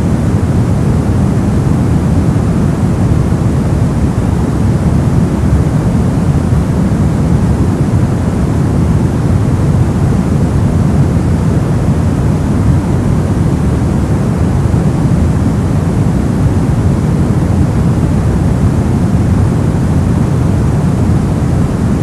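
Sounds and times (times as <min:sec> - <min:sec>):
brown noise hiss: 0:00.0 - 0:22.0.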